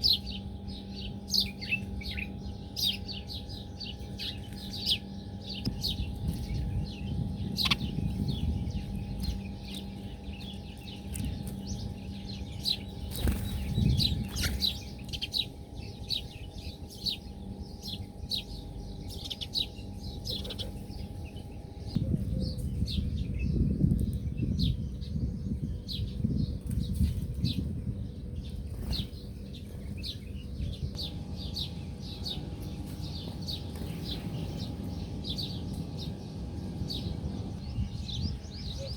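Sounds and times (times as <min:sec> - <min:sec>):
small birds chirping: 0:00.0 - 0:38.9
wings fluttering and rustling: 0:06.0 - 0:15.4, 0:26.1 - 0:30.3, 0:31.1 - 0:35.2.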